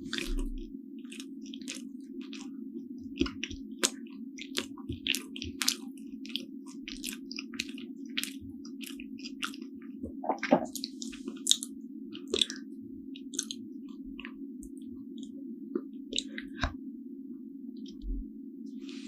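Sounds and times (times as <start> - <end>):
mouth chewing soft bun: 0.0 - 16.8
steady low hum: 0.0 - 19.0.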